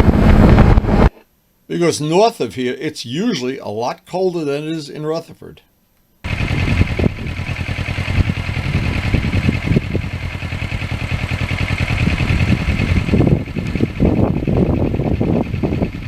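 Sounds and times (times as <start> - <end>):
motorcycle engine running: 0.0 - 1.0, 6.3 - 16.0
wind noise: 0.0 - 1.1, 6.3 - 16.0
road noise: 6.3 - 16.0.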